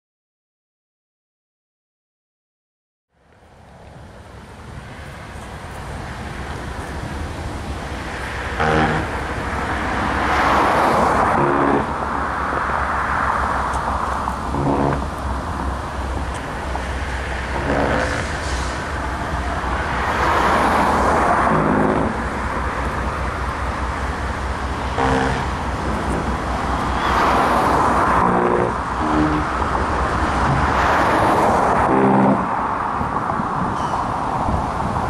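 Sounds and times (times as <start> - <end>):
distant diesel locomotive rumble: 3.1 - 35.0
rushing traffic: 3.1 - 35.0
short horn blasts: 8.3 - 12.1, 14.0 - 15.3, 16.8 - 20.3, 21.1 - 29.8, 31.6 - 32.6.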